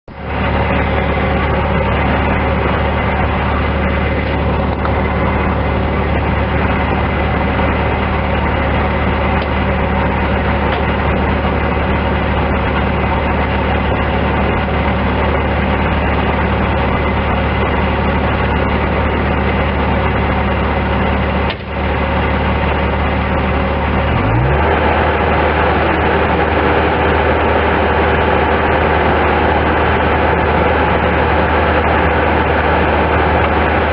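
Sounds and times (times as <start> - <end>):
diesel engine idling and revving: 0.0 - 33.9.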